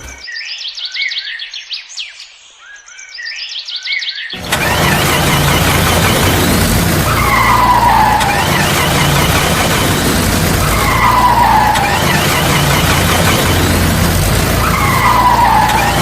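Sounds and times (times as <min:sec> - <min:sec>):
cartoon engine drone: 0:04.4 - 0:16.0
falling whine: 0:04.4 - 0:16.0
wheels spinning skidding hiss: 0:04.4 - 0:16.0.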